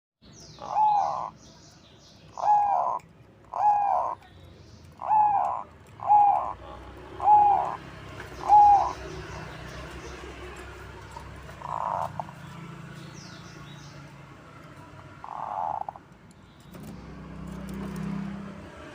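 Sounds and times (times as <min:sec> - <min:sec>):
dove cooing: 0:00.6 - 0:01.4, 0:02.4 - 0:04.2, 0:05.0 - 0:09.4, 0:11.1 - 0:12.4, 0:15.2 - 0:16.0.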